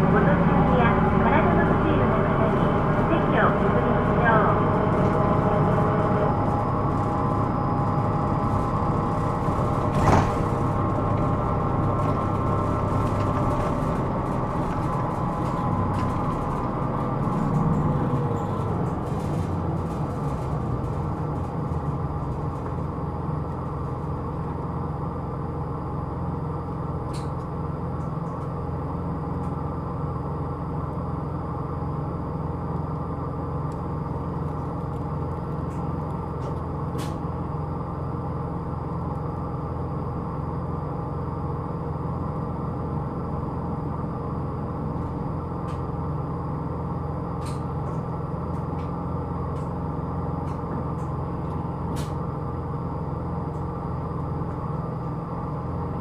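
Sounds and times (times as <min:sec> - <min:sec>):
road noise: 0:00.0 - 0:25.5
bus diesel engine: 0:00.0 - 0:56.0.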